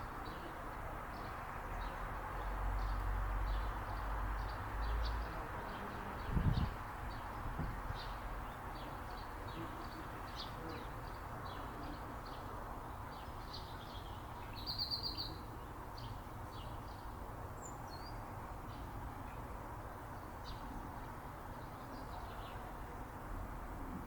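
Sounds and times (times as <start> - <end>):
small birds chirping: 13.1 - 18.9.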